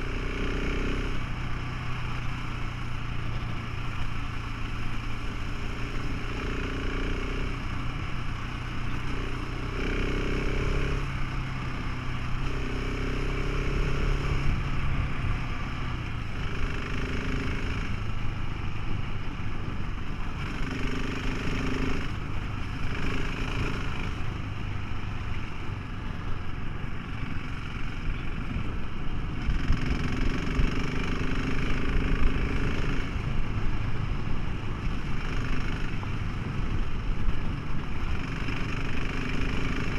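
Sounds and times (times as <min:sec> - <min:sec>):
motorcycle engine running: 0:00.0 - 0:39.9
steady rushing noise: 0:10.5 - 0:39.9.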